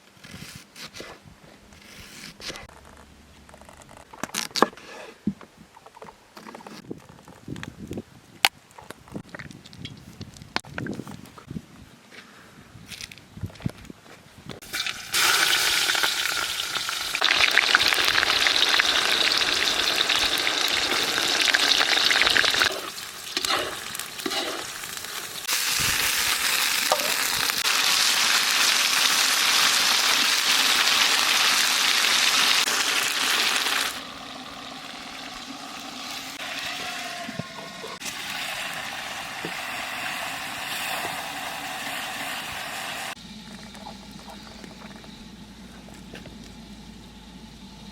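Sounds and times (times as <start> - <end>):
chicken sizzling in hot oil: 14.6 - 43.2.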